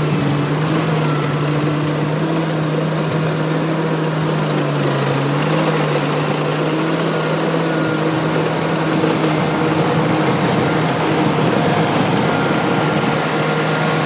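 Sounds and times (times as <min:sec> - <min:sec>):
harvester engine humming: 0:00.0 - 0:14.0
noisy mechanical rush: 0:00.0 - 0:14.0.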